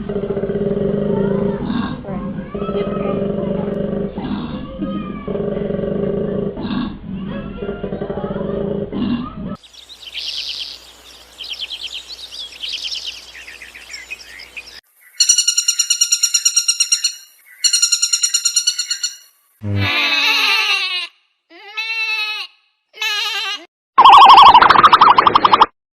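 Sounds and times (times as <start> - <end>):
high bird chirps: 9.6 - 19.9
low drawn-out animal call: 19.6 - 20.7.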